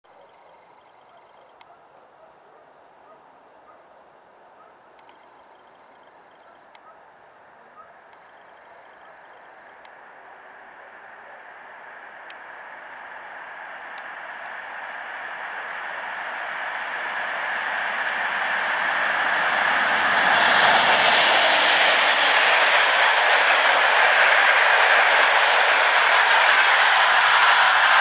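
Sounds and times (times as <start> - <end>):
train wheels on rails: 8.0 - 28.0.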